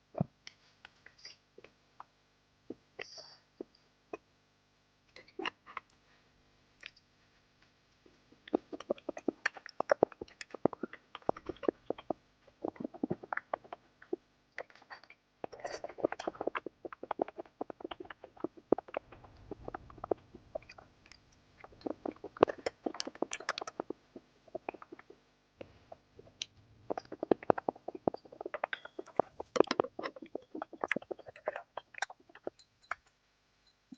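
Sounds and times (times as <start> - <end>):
person chewing sticky food: 8.4 - 33.0.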